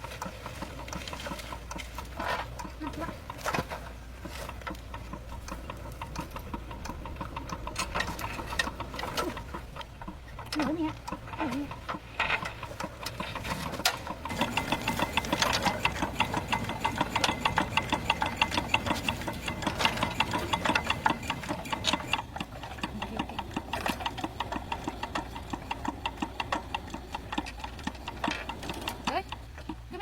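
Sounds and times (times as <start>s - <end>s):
engine clattering: 0.0s - 30.0s.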